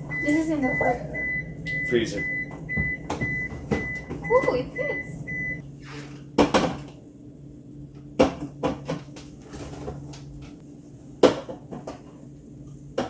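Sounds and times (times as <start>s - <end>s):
low steady hum: 0.0s - 5.8s.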